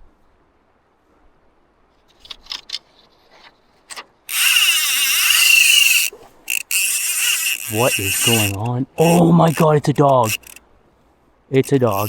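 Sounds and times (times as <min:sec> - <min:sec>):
fishing reel drag screaming: 0:04.3 - 0:10.6, 0:11.6 - 0:12.0.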